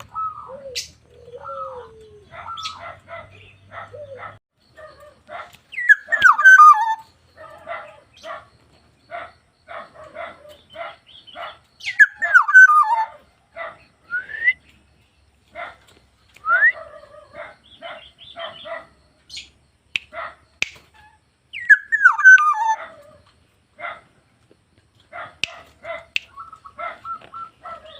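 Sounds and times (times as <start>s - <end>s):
bird fluty whistled phrases: 5.7s - 7.1s, 11.9s - 13.1s, 14.0s - 14.7s, 16.4s - 16.9s, 21.6s - 22.8s, 26.2s - 27.6s.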